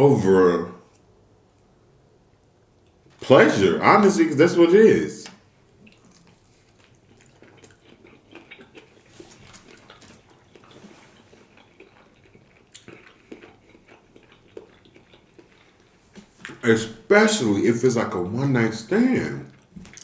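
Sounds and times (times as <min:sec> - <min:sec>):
person chewing with wet mouth clicks: 0:05.8 - 0:16.6, 0:19.5 - 0:20.0.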